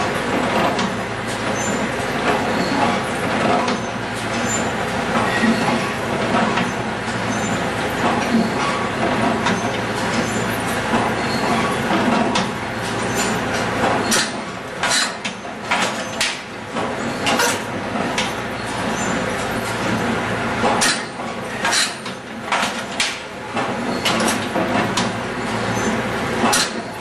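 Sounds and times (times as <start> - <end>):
mechanical clatter of metal parts: 17.1 - 19.5, 20.8 - 25.2.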